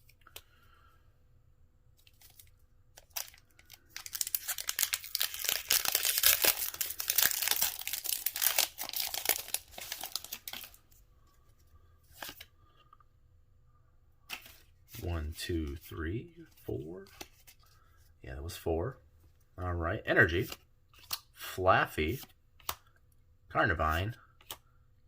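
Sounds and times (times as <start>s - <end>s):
foil wrapper crinkling and tearing: 2.0s - 10.8s.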